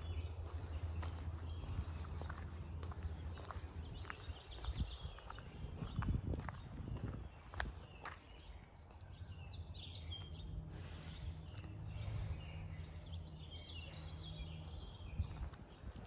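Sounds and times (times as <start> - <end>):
songbirds chirping and singing: 0.0 - 16.0
low steady hum: 8.5 - 16.0.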